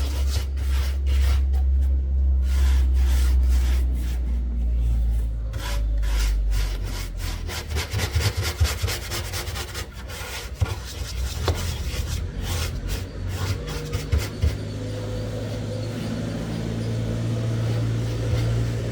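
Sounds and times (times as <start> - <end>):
hand tool scraping hard surface: 0.0 - 1.7, 4.9 - 14.7.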